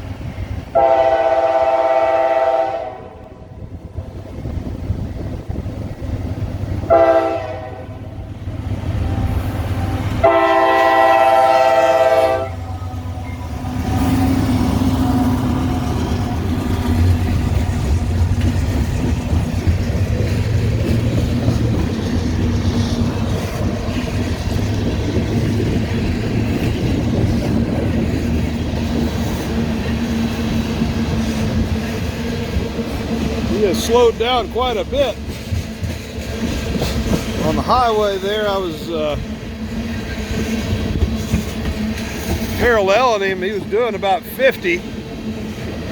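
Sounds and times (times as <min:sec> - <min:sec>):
train rumbling: 0:00.0 - 0:45.9
wheels clacking on rails: 0:00.0 - 0:45.9
locomotive air horn: 0:00.7 - 0:03.4, 0:06.9 - 0:08.3, 0:09.0 - 0:14.4.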